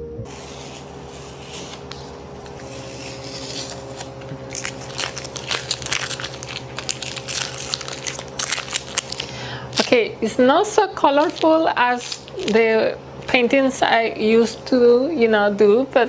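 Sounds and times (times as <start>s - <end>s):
steady low hum: 0.0s - 16.0s
crinkling and crackling: 1.5s - 10.1s, 10.7s - 13.4s.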